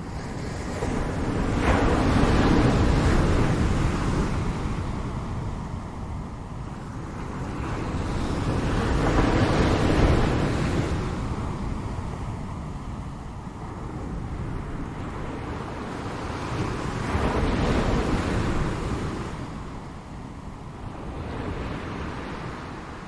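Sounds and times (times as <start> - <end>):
ocean waves breaking on shore: 0.0 - 23.0.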